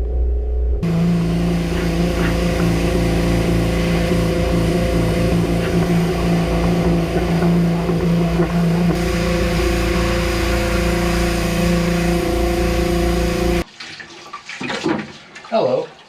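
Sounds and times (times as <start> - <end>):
pressure washer motor drone: 0.8 - 13.6
spray hissing: 0.8 - 13.6.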